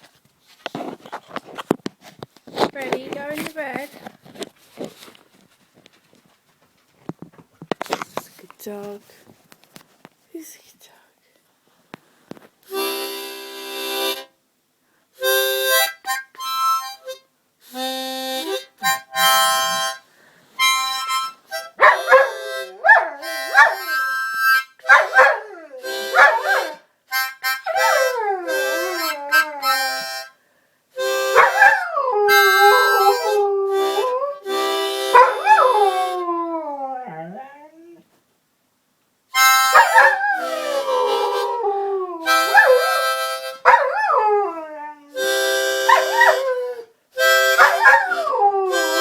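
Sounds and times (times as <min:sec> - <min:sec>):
harmonica chords: 0:12.7 - 0:14.4, 0:15.2 - 0:25.2, 0:25.8 - 0:30.4, 0:31.0 - 0:36.2, 0:39.3 - 0:44.4, 0:45.2 - 0:49.0
dog howling and yipping: 0:21.8 - 0:24.0, 0:24.8 - 0:26.8, 0:27.6 - 0:30.0, 0:31.4 - 0:34.5, 0:35.1 - 0:38.0, 0:39.7 - 0:46.9, 0:47.6 - 0:49.0.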